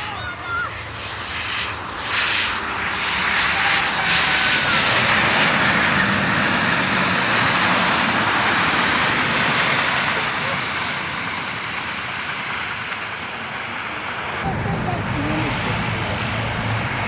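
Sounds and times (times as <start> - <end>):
airliner engines rushing: 0.0 - 17.0.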